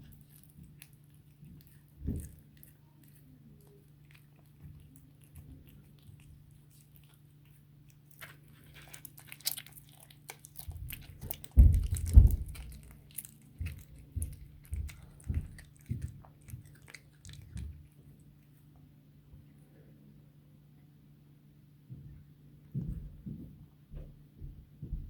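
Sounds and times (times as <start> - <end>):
cat crunching bones: 0.0 - 18.6.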